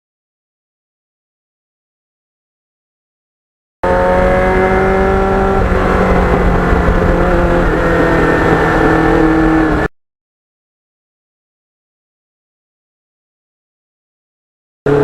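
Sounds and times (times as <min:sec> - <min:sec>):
motorcycle engine running: 0:03.8 - 0:09.9.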